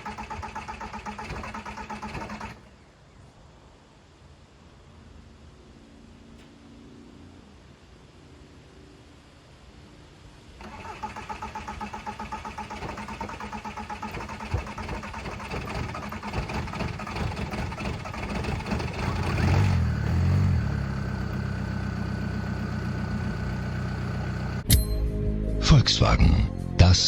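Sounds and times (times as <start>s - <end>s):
engine idling: 0.0s - 2.8s, 10.6s - 24.7s
engine starter cranking: 0.0s - 2.8s, 10.6s - 24.7s.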